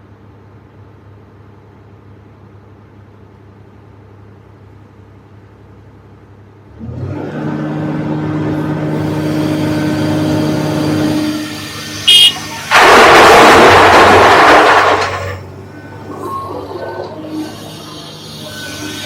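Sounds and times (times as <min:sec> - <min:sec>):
excavator diesel engine running: 0:06.8 - 0:19.0.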